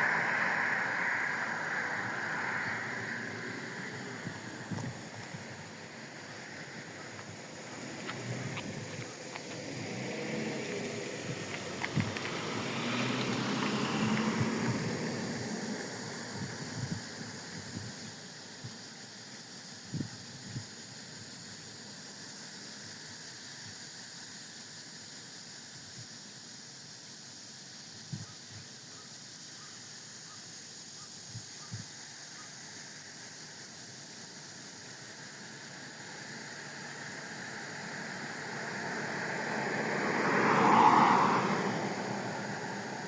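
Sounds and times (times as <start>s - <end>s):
vehicle passing close: 0.0s - 18.0s, 35.7s - 43.0s
steady outdoor hiss: 0.0s - 43.0s.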